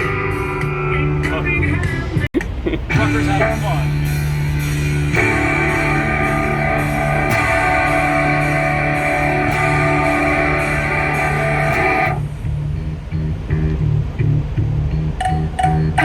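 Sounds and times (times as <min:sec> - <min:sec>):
rock guitar chord ringing: 0:03.0 - 0:12.3.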